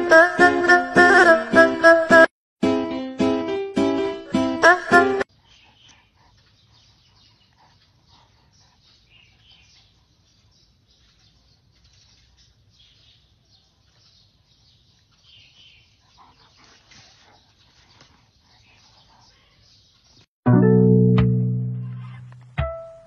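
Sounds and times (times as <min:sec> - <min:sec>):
music: 0:00.0 - 0:05.2, 0:20.5 - 0:23.0
distant bird calls: 0:05.3 - 0:20.3.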